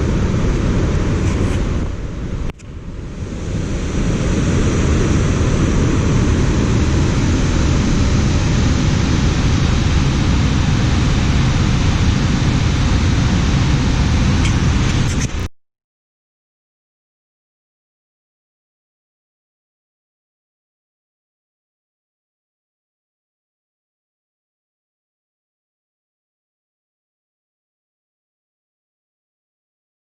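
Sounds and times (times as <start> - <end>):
waterfall roaring: 0.0 - 15.5.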